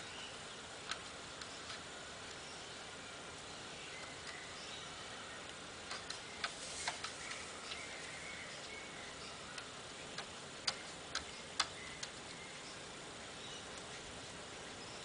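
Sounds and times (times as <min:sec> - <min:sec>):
low hiss: 0:00.0 - 0:15.0
sharp irregular clicks: 0:00.8 - 0:02.4, 0:05.4 - 0:08.7, 0:09.5 - 0:12.4.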